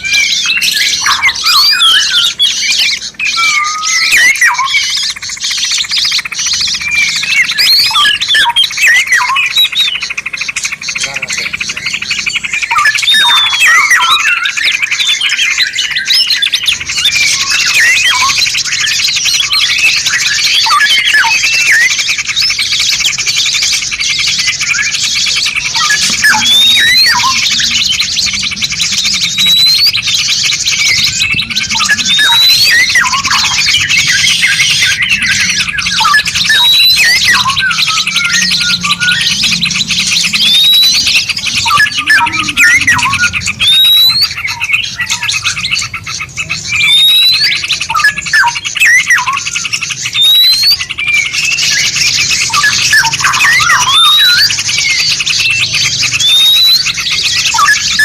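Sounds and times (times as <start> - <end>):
bird rising whistle: 0.0 - 10.0, 24.4 - 45.8, 46.7 - 49.4, 50.2 - 55.0, 56.0 - 58.0
songbirds singing: 0.0 - 58.0.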